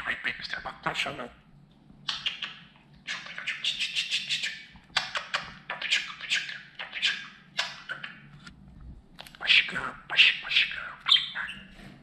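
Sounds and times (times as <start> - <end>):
budgerigar warbling and chattering: 2.0 - 8.3, 9.4 - 11.7.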